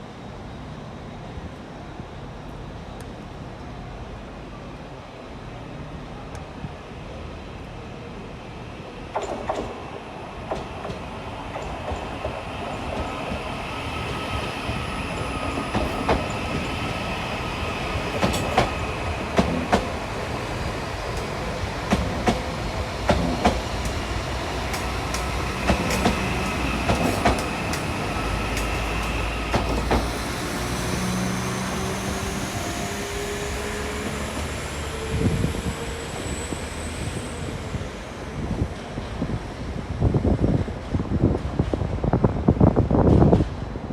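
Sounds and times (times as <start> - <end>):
train low rumble: 0.0 - 43.9
train wheels clicking on rail joints: 9.1 - 34.6.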